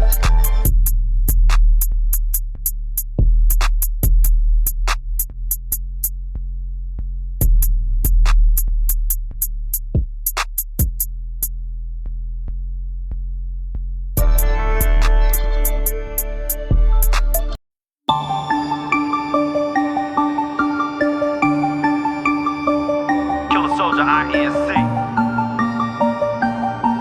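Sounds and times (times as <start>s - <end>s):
hi-hat rolls: 0.0s - 6.2s, 7.4s - 11.1s, 14.2s - 17.6s
deep bass: 0.0s - 17.6s
kick drum hits: 10.8s - 11.0s.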